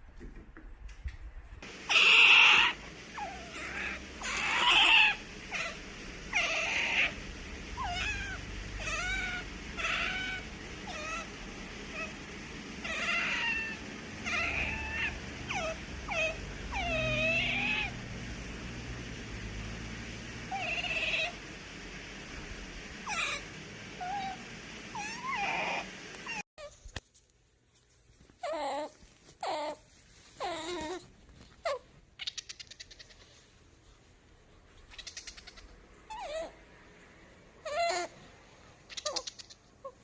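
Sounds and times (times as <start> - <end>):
otter chirping and squealing: 1.9 - 12.2, 12.8 - 18.0, 20.5 - 21.4, 23.0 - 26.7, 30.4 - 33.4, 34.8 - 36.6, 37.6 - 38.2, 38.8 - 40.0.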